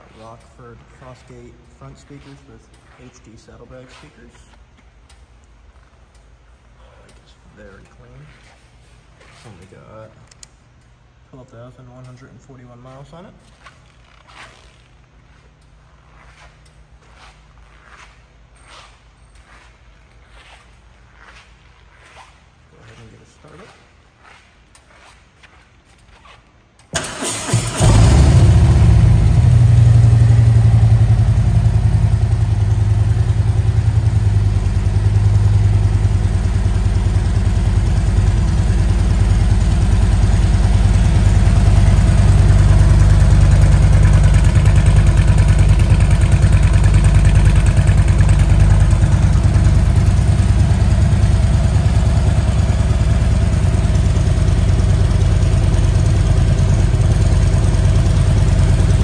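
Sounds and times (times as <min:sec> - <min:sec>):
motorcycle engine idling: 0:27.8 - 0:59.0.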